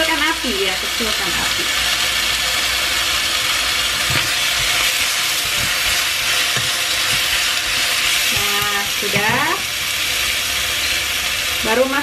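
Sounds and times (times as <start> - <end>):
chicken sizzling in a frying pan: 0.0 - 12.0
spatula scraping and knocking pan: 3.9 - 9.6.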